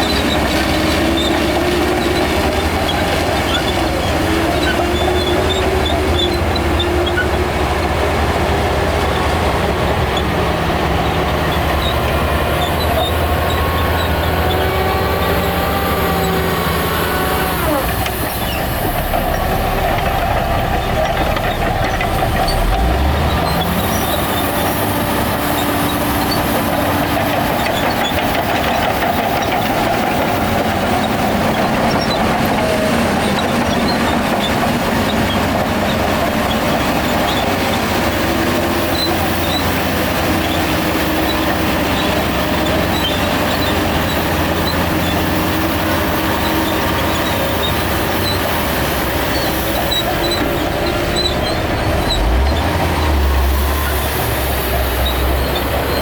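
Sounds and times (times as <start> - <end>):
diesel machinery engine running: 0.0 - 56.0.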